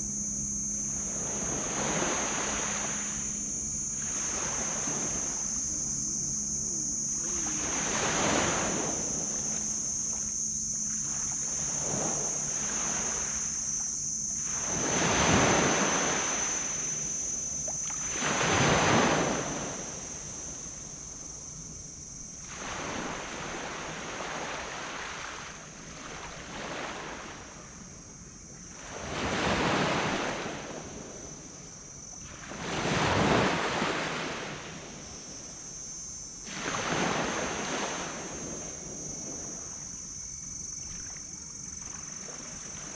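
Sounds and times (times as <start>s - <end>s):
faint low hum: 0.0s - 42.9s
steady high-pitched whine: 0.0s - 42.9s
waves breaking on beach: 0.9s - 13.7s, 14.4s - 17.1s, 17.8s - 20.8s, 22.4s - 27.6s, 28.7s - 31.4s, 32.2s - 40.2s.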